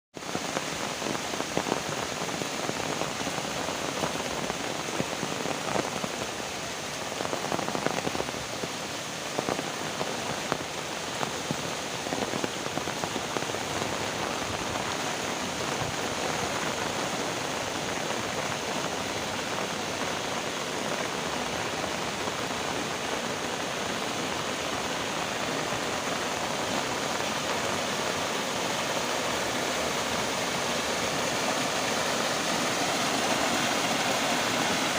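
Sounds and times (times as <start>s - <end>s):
heavy rain falling: 0.1s - 34.9s
raindrops ticking on surfaces: 0.2s - 34.9s.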